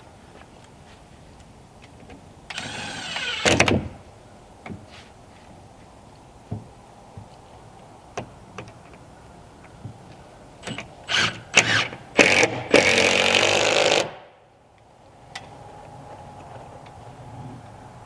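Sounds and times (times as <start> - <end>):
handheld power tool running: 2.5 - 3.6.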